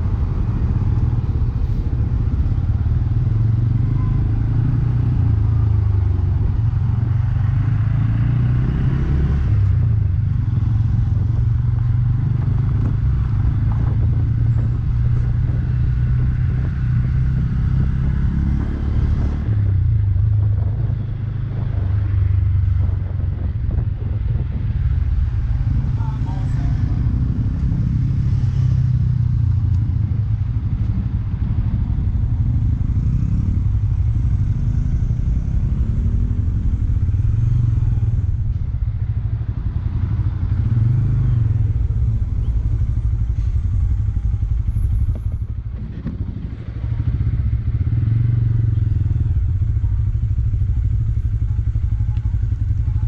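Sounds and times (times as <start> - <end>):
motorcycle engine running: 19.4 - 53.0.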